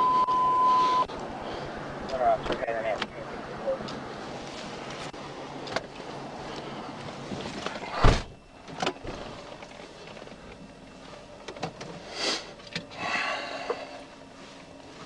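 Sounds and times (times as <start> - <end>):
car door slamming: 7.9 - 9.2.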